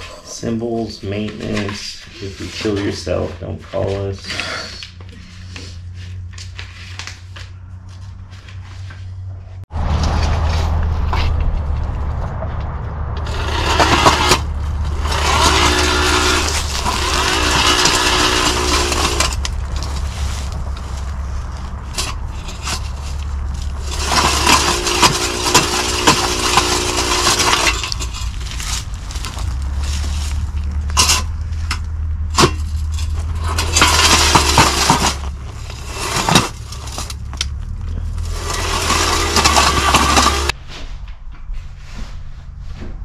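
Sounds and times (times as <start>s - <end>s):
scraping noise: 0.0s - 4.2s, 7.9s - 43.0s
steady low hum: 0.0s - 43.0s
power tool motor whining: 13.2s - 21.1s, 21.8s - 31.9s, 32.8s - 40.5s.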